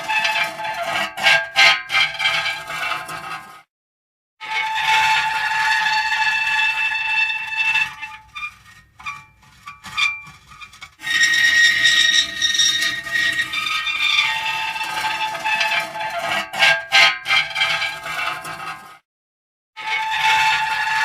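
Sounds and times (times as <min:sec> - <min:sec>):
metal creaking and squealing: 0:00.0 - 0:03.5, 0:04.4 - 0:19.0, 0:19.8 - 0:21.0.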